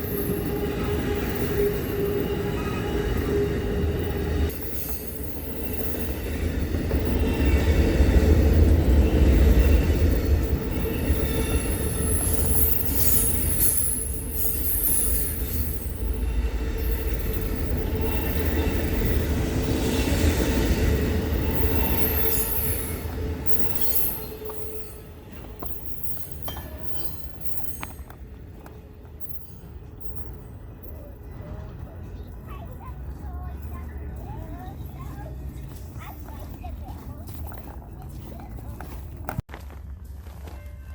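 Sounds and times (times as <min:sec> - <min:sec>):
train wheel squeal: 0:00.0 - 0:39.4
train rumbling on rails: 0:00.0 - 0:40.9.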